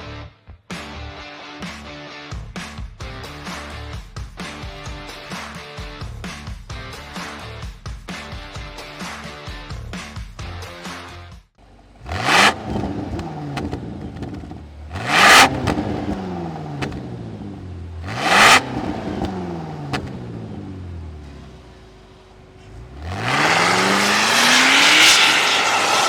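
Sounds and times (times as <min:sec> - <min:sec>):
car engine revving: 0:11.9 - 0:26.0
exhaust pops: 0:12.0 - 0:21.8.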